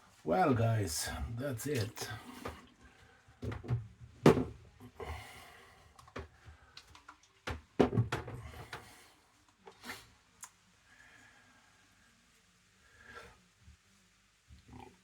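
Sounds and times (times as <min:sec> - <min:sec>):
objects knocking on hard surface: 0:03.4 - 0:04.6, 0:07.5 - 0:08.9.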